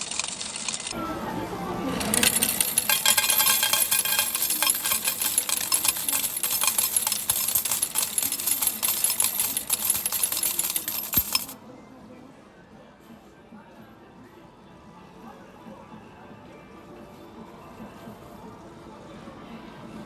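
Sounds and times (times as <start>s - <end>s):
metal tokens clattering: 0.0s - 1.0s, 2.0s - 11.6s.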